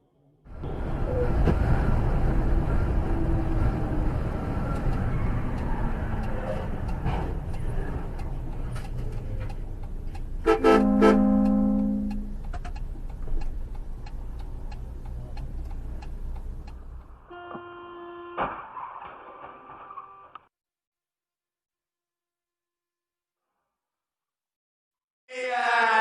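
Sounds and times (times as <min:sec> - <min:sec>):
vehicle driving rumble: 0:00.5 - 0:17.3
two-note car horn: 0:10.4 - 0:12.4, 0:17.3 - 0:18.5.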